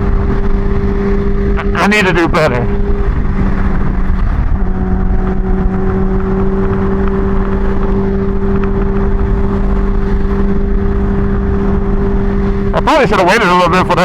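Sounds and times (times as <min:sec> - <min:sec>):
motorcycle engine cruising: 0:00.0 - 0:14.0
wind rush on microphone: 0:00.0 - 0:14.0.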